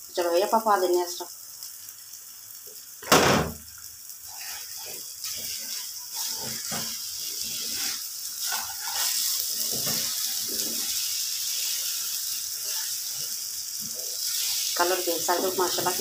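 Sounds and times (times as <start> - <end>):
food sizzling in oil: 0.0 - 16.0
wooden spatula scraping pan: 4.3 - 11.0.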